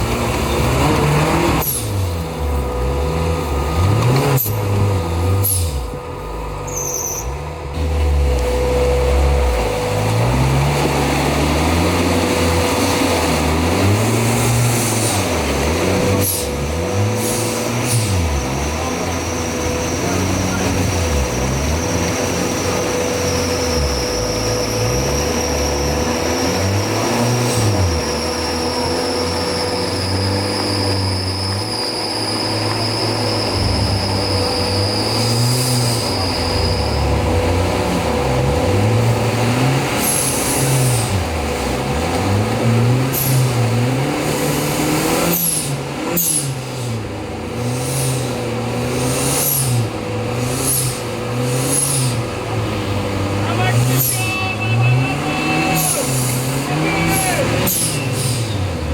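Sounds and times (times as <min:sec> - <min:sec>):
engine revving: 0:00.0 - 0:58.9
high whine: 0:00.0 - 0:58.9
sharp high squeals: 0:06.6 - 0:07.5, 0:16.3 - 0:41.9, 0:53.6 - 0:58.7.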